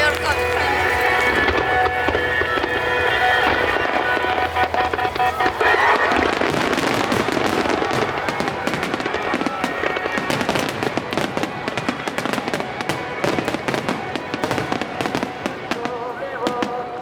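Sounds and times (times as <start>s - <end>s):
fireworks bursting and crackling: 0.0s - 17.0s
music: 0.0s - 17.0s.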